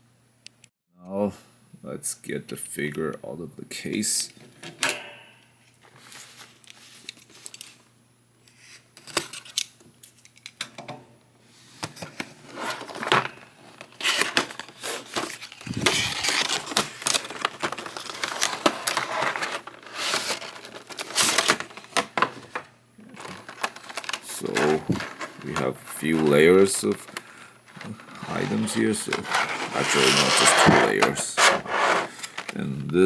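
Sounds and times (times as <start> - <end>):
plastic trays crinkling and rustling: 11.8 - 32.8.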